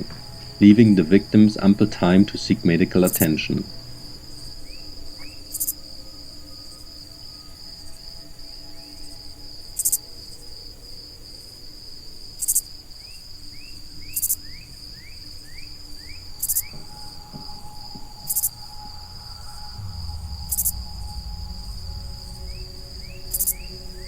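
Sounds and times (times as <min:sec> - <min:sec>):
high cricket trill: 0:00.0 - 0:24.0
short rising chirps: 0:15.7 - 0:24.0.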